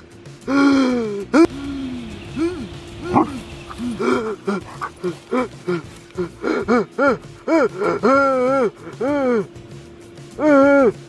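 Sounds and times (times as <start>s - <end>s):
background music held tone: 0.0s - 11.0s
dog whining and howling: 2.3s - 5.2s.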